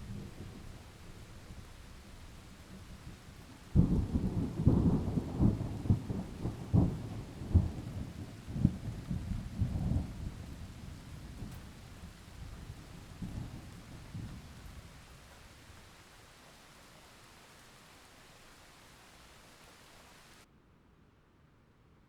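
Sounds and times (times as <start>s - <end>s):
heavy rain: 0.0s - 20.5s
thunder crackling rumble: 3.7s - 15.1s.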